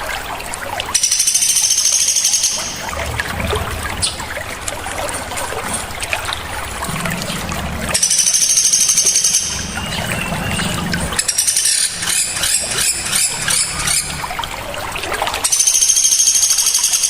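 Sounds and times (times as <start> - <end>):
songbird pulsing trill: 1.0 - 2.9, 8.0 - 14.1, 15.5 - 17.0.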